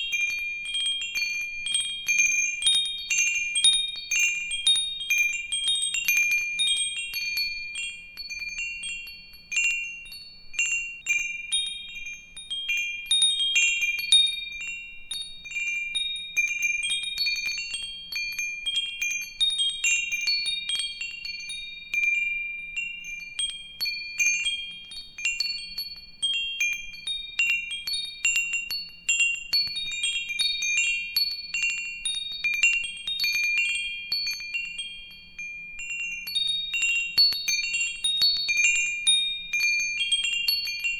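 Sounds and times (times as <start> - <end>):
wind chimes jingling: 26.4 - 40.9.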